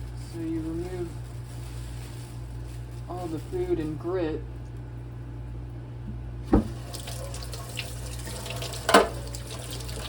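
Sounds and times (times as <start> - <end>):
tap water running: 6.5 - 10.0.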